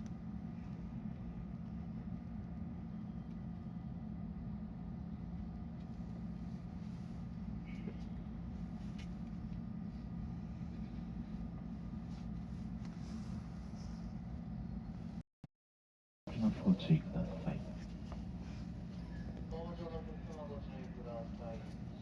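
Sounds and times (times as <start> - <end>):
electric train equipment humming: 0.0 - 15.2, 16.3 - 22.0.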